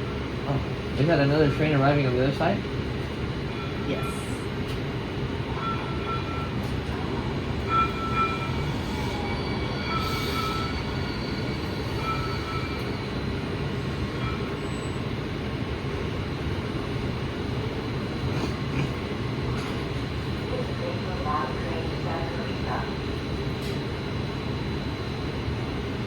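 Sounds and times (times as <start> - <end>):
train low rumble: 0.0 - 26.0
high wheel squeals: 7.7 - 13.2.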